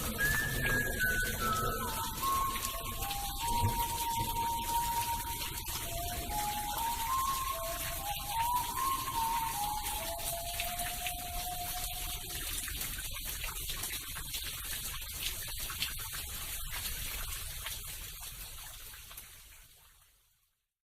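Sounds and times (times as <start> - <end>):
held musical note: 0.0 - 12.3
rain hiss: 0.0 - 19.8.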